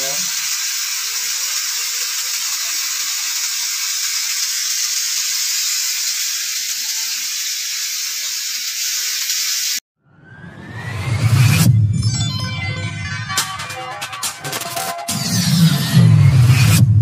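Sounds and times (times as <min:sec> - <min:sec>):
vegetables frying in a wok: 0:00.0 - 0:09.8.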